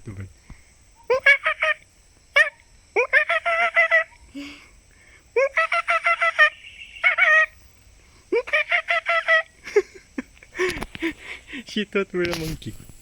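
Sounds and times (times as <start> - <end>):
bird of prey calling: 6.1 - 7.6.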